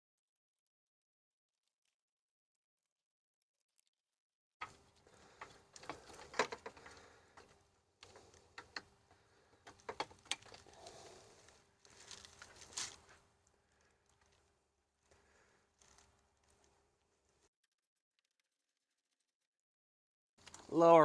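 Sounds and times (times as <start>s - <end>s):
plastic parts clicking and knocking: 4.6s - 12.6s.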